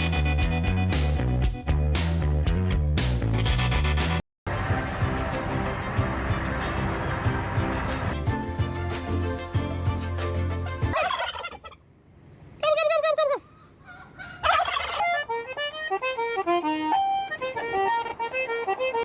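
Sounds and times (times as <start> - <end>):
melody of stepping notes: 15.1 - 19.0.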